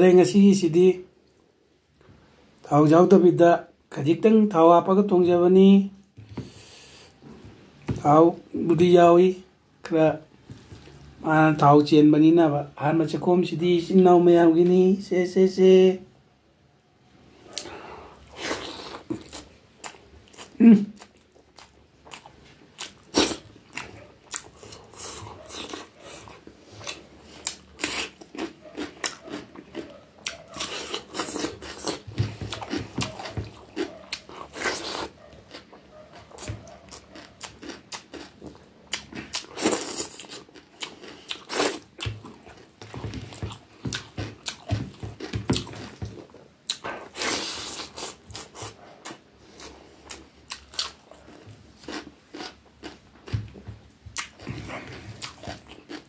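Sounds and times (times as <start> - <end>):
wet chewing and lip-smacking: 18.4 - 56.0.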